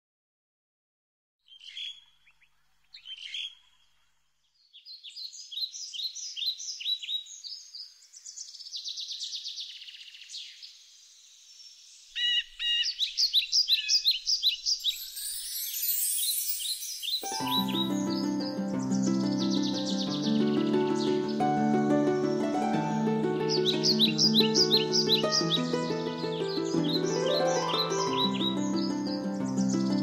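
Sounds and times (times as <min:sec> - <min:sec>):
birds chirping and trilling: 0:01.5 - 0:30.0.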